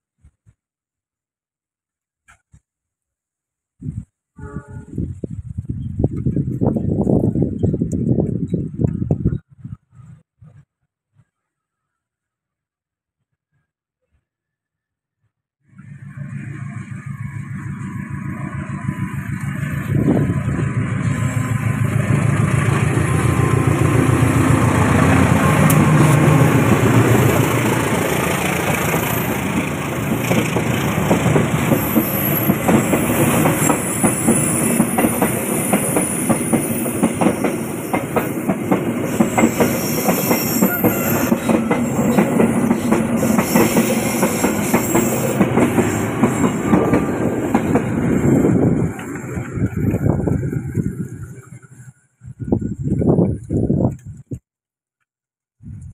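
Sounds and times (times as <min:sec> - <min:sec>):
locomotive engine rumble: 0:15.8 - 0:35.0, 0:40.6 - 0:53.8
train wheels clickety-clack: 0:22.0 - 0:51.2.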